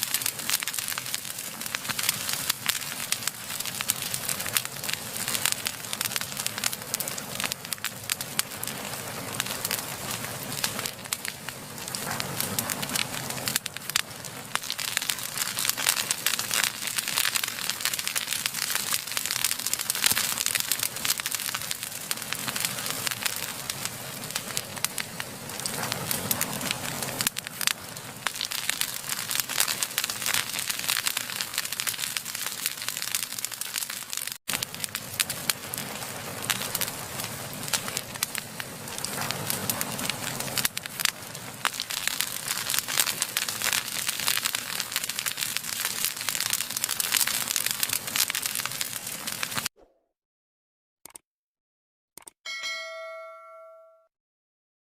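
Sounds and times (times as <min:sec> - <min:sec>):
fire hiss: 0:00.0 - 0:49.7
wood fire crackling and popping: 0:00.0 - 0:49.7.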